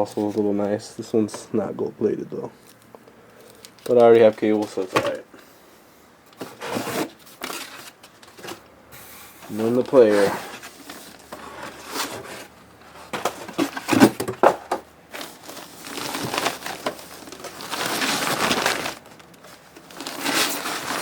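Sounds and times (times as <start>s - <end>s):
packing material rustling: 2.6s - 5.2s, 6.4s - 8.6s, 9.4s - 14.3s, 15.1s - 21.0s
packaging knocks and crinkles: 2.7s - 5.2s, 9.4s - 21.0s.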